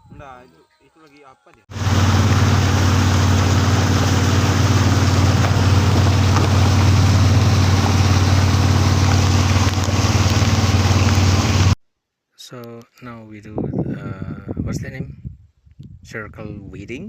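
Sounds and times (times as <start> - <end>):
motor engine humming: 1.7 - 11.8.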